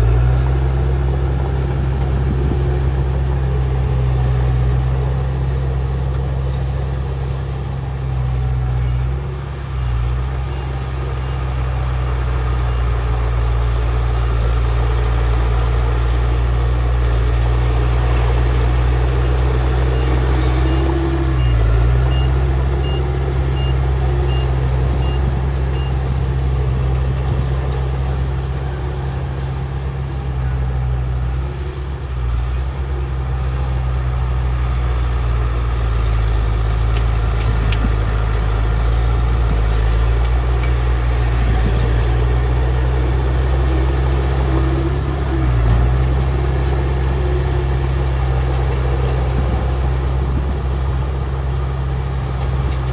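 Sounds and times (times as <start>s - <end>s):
diesel earthmoving machinery running: 0.0s - 52.9s
reversing alarm beeping: 19.1s - 26.0s.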